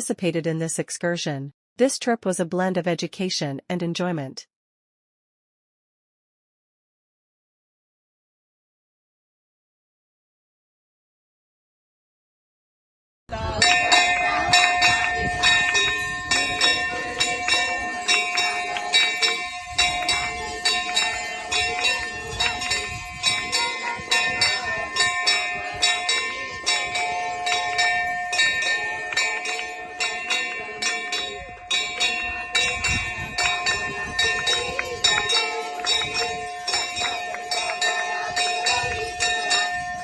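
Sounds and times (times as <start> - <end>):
bells ringing rapidly: 13.4 - 40.0.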